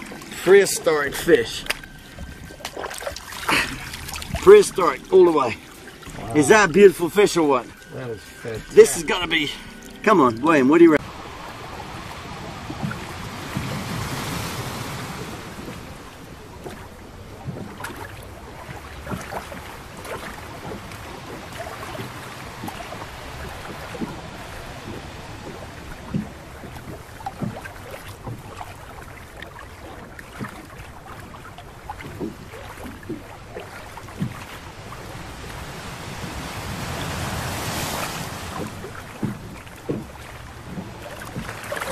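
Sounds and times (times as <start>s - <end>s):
sea water splashing against boat: 0.0s - 41.9s
wind on microphone: 11.0s - 28.6s, 30.0s - 41.9s
short knocks and thuds: 38.5s - 41.8s.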